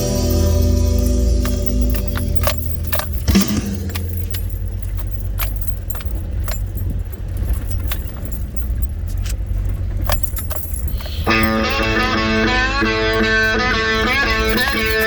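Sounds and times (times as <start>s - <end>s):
guitar music: 0.0s - 2.8s, 11.3s - 15.0s
light jingling clicks: 0.0s - 15.0s
steady low rumble: 0.0s - 15.0s.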